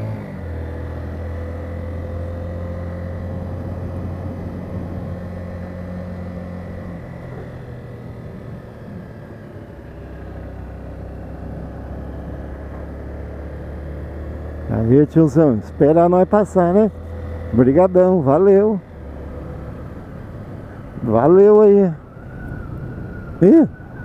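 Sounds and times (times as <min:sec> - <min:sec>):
small motorcycle engine running: 0:00.0 - 0:23.6.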